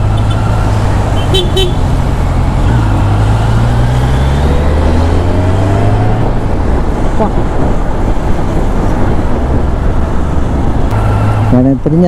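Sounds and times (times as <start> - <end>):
vehicle driving on road: 0.0 - 12.0
vehicle horn toots: 1.2 - 1.8.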